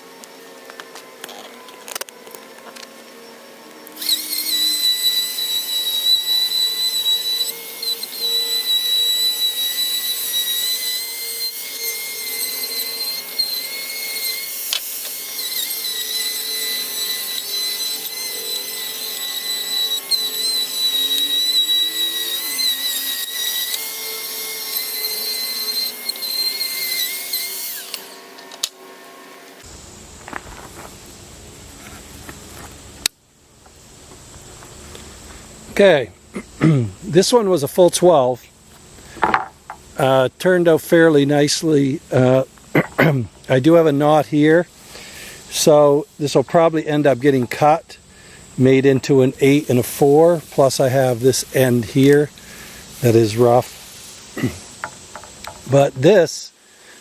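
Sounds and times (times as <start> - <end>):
thickness planer whining: 0.0 - 29.8.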